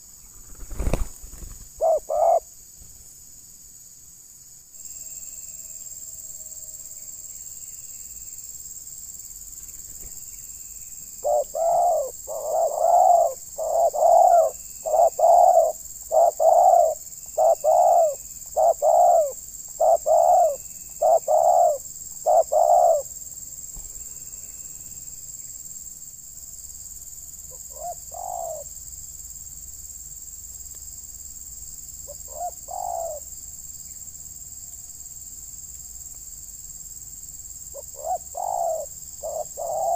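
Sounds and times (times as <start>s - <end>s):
dove cooing: 1.8s - 2.5s, 11.2s - 23.1s, 27.6s - 28.6s, 32.3s - 33.2s, 37.8s - 39.9s.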